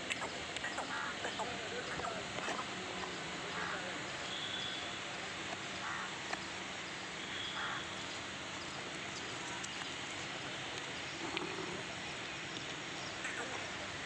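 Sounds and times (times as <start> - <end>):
outdoor background noise: 0.0 - 14.0
faint high chirps: 4.2 - 5.0
faint clicks: 10.7 - 11.7.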